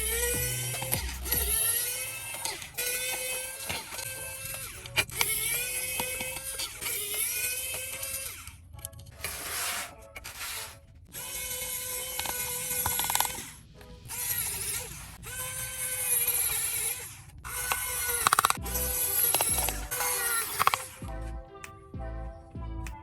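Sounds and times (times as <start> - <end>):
small electric tool motor: 0.0 - 21.1
clicks: 17.6 - 21.8.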